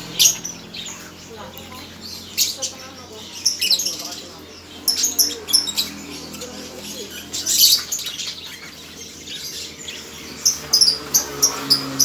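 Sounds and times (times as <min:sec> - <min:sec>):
lovebirds chirping and squawking: 0:00.0 - 0:12.0.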